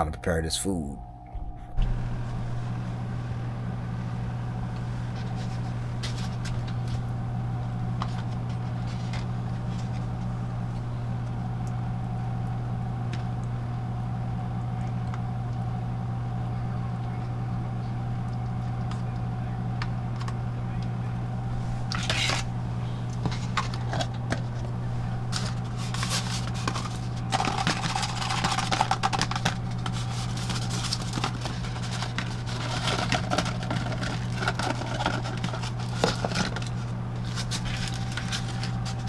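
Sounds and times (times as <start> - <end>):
steady low hum: 0.0 - 39.0
packaging rustling and clicking: 8.0 - 10.2, 23.1 - 39.0.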